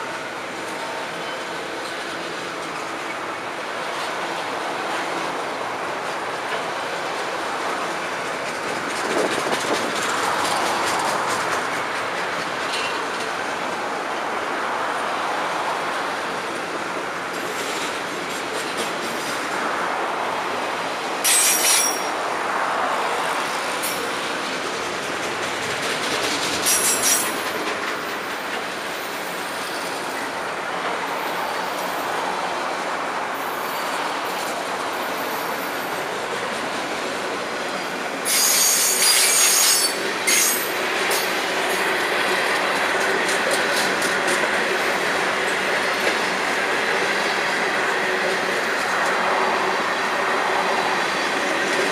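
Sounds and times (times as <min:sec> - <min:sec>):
freight train wheels rumbling: 0:00.0 - 0:51.9
high-pitched wheel squeals: 0:38.3 - 0:40.7.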